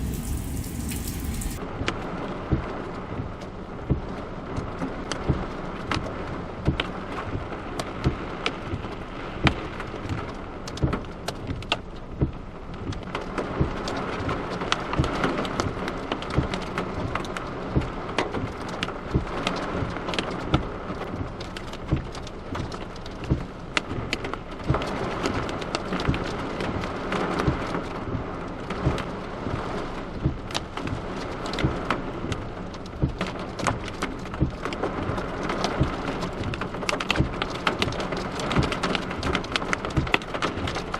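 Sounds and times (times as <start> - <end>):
heavy rain hiss: 0.0 - 1.6
hail ticking on car: 9.5 - 40.9.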